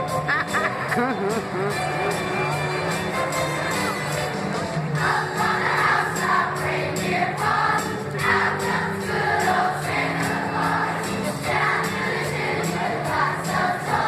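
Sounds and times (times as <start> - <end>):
instrumental accompaniment: 0.0 - 14.0
steady percussion beat: 0.0 - 14.0
choir singing: 5.0 - 14.0.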